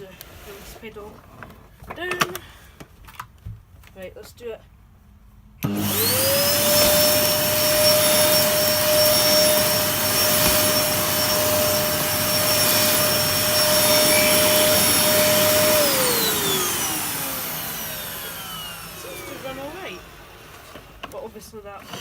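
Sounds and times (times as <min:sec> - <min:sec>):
vacuum cleaner motor whine: 0:05.6 - 0:22.0.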